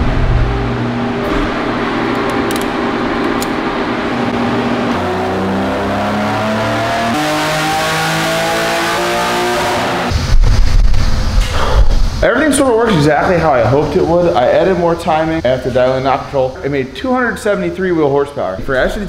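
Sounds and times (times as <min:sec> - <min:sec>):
car engine revving on a dynamometer: 0:00.0 - 0:10.2.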